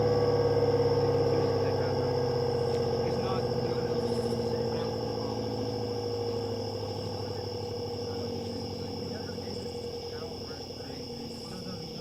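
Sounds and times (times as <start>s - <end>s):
high insect-like whine: 0.0s - 12.0s.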